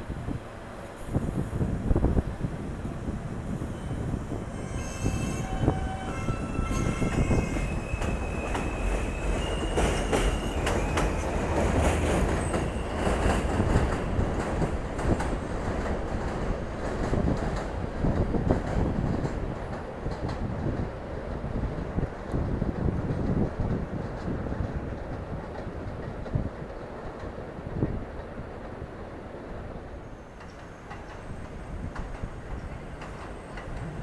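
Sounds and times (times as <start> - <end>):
train rumbling: 0.0 - 34.0
train wheels squealing: 1.0 - 15.7, 30.0 - 34.0.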